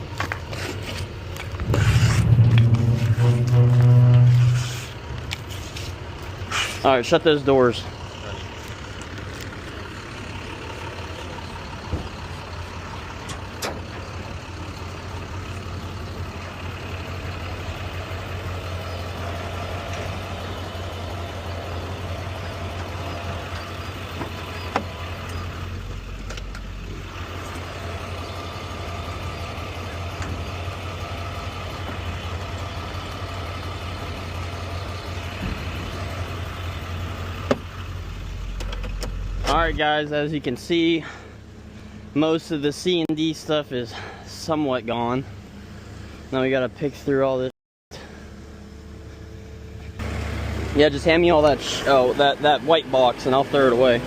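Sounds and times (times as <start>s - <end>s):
truck engine running: 0.0s - 47.1s, 48.0s - 54.0s.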